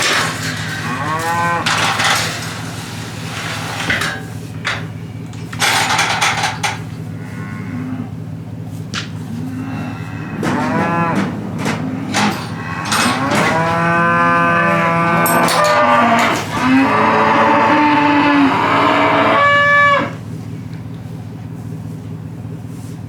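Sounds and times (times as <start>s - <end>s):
cattle mooing: 0.0s - 4.0s, 5.7s - 8.4s, 9.0s - 20.3s
steady low hum: 0.0s - 23.0s.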